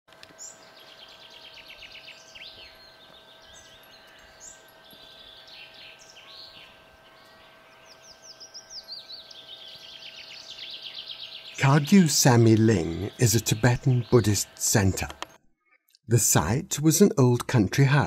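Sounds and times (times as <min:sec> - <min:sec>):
songbirds trilling and chirping: 0:00.1 - 0:15.9.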